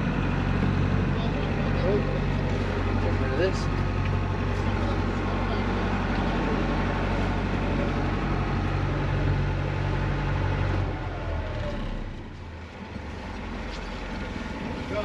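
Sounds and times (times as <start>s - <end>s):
boat engine humming: 0.0s - 15.0s
wind and water wash: 12.2s - 15.0s.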